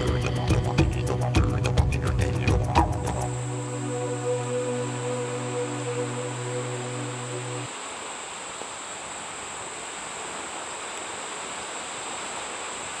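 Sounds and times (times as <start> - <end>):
low droning note: 0.0 - 7.7.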